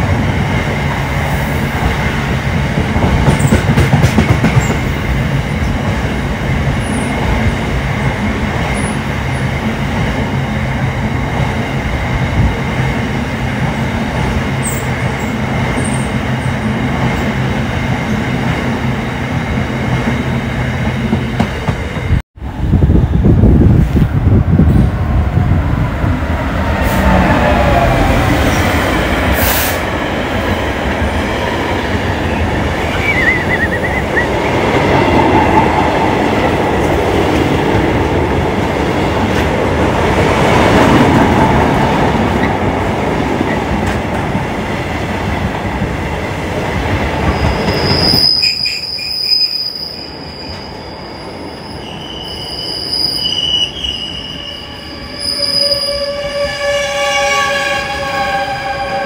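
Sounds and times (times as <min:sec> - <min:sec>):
train wheels rumbling on rail: 0:00.0 - 0:59.0
high-pitched wheel squeal: 0:32.9 - 0:34.4, 0:47.3 - 0:59.0.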